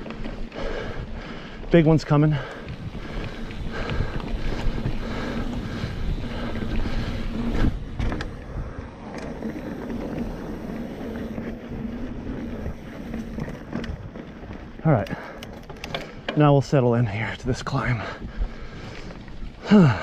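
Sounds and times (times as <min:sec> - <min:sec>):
bike rattling: 0:00.0 - 0:20.0
bike tyres rolling on dirt: 0:00.0 - 0:20.0
wind noise on microphone: 0:02.4 - 0:14.8.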